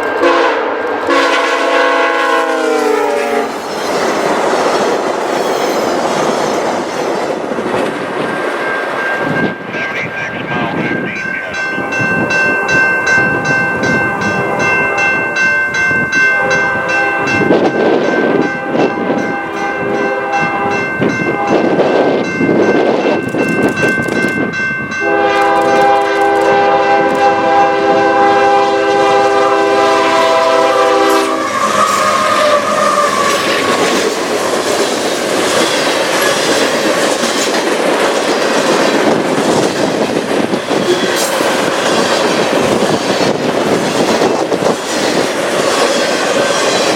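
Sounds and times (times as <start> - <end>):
train air horn chord: 0.1 - 3.6, 19.5 - 20.8, 25.0 - 33.4
train wheels clacking: 2.9 - 9.9, 11.2 - 27.6, 31.0 - 46.9.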